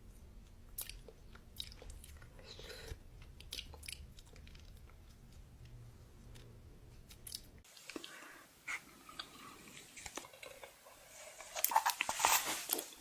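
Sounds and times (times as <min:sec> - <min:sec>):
crunchy food being chewed: 0:00.5 - 0:05.5.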